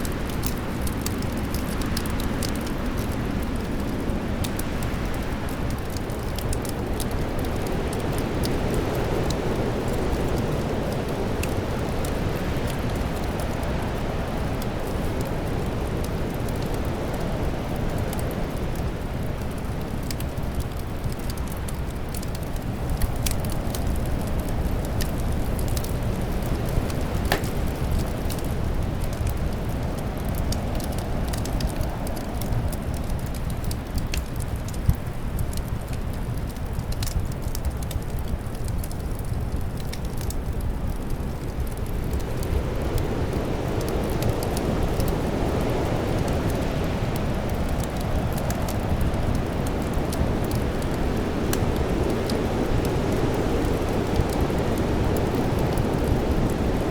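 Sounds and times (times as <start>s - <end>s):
fire popping and snapping: 0.0s - 56.9s
low rush of wind: 0.0s - 56.9s
fireplace crackling: 0.1s - 32.3s.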